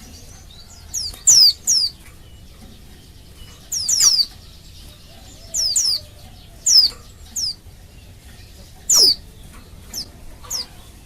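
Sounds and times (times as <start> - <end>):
bird giving high falling calls: 0.0 - 11.0.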